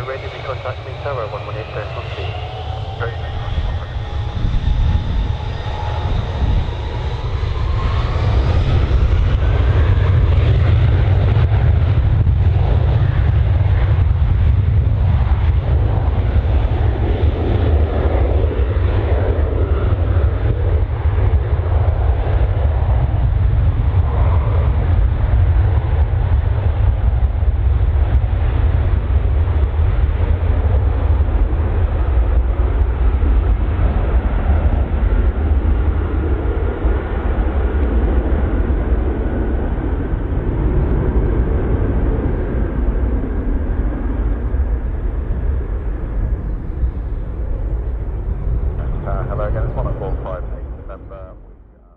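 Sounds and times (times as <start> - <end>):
jet engines whining and rumbling: 0.0 - 51.9.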